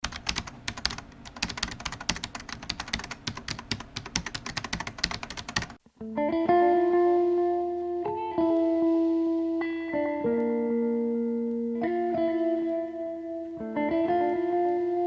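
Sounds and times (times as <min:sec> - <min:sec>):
keyboard typing clicks: 0:00.0 - 0:05.8
plucked guitar background music: 0:05.8 - 0:15.0.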